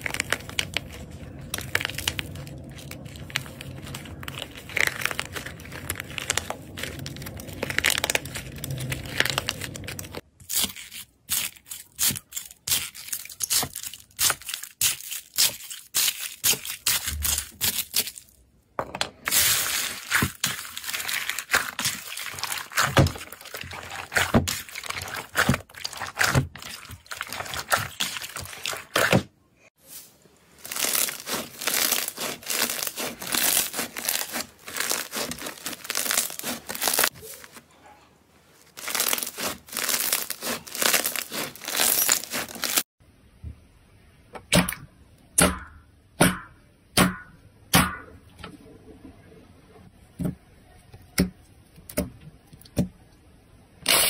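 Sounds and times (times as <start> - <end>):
slime squished by hand: 30.6 - 37.6, 38.7 - 42.8.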